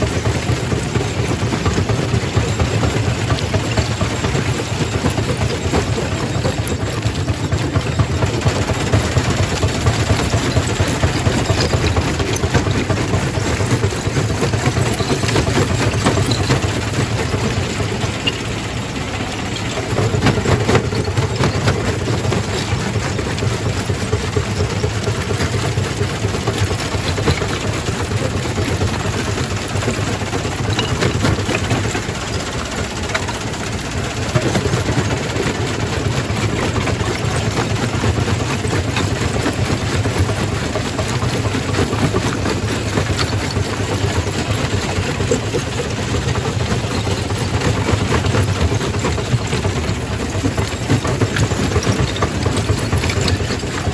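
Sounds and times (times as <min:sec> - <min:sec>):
rock crusher droning: 0:00.0 - 0:25.6.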